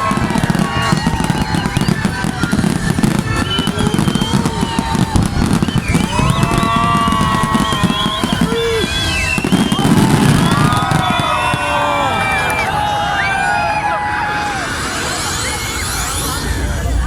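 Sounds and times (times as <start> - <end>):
fireworks crackling bangs: 0.0 - 12.8
fireworks whistling: 0.0 - 16.9.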